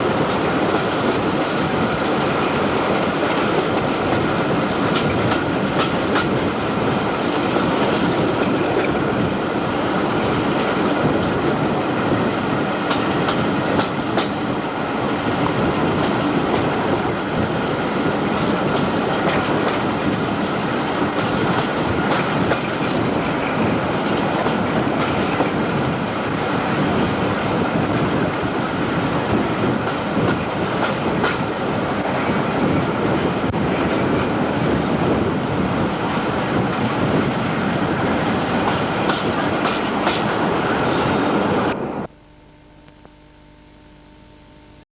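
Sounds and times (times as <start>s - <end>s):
train wheels rumbling on rail: 0.0s - 42.1s.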